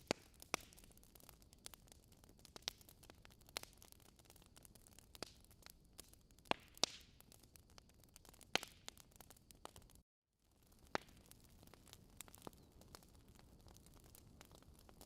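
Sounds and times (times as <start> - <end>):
logs crackling in fireplace: 0.0 - 15.0
faint fire hiss: 10.7 - 15.0.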